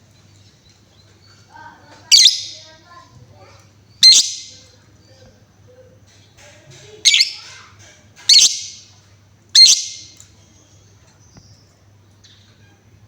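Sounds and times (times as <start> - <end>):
lovebird high-pitched calls: 2.0 - 2.8, 3.9 - 4.7, 7.0 - 7.6, 8.3 - 8.9, 9.6 - 10.2.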